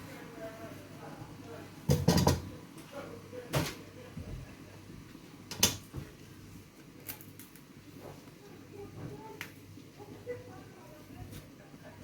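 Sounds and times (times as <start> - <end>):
sharp kitchen knocks: 1.9 - 2.5
small kitchen taps: 1.9 - 2.5.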